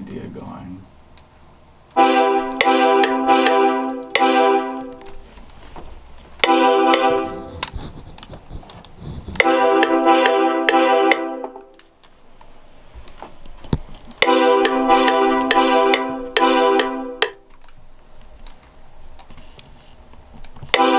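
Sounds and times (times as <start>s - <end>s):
repeated piano-like chords: 1.9s - 5.3s, 6.3s - 7.7s, 9.4s - 12.0s, 14.1s - 17.7s.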